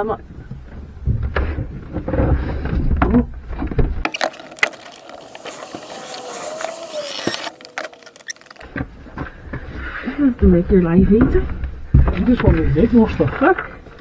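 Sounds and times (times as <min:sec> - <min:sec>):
cordless drill driving a screw: 0:04.1 - 0:08.6.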